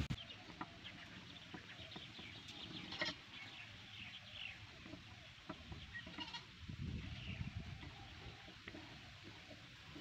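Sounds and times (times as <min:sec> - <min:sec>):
faint bird calls: 0:07.1 - 0:09.7.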